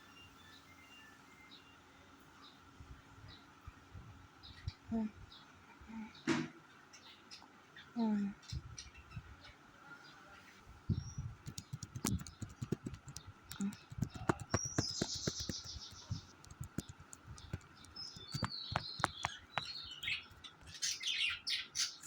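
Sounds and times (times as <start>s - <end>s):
budgerigars chirping and chattering: 10.9s - 22.0s
sharp clicks and taps: 11.4s - 20.2s.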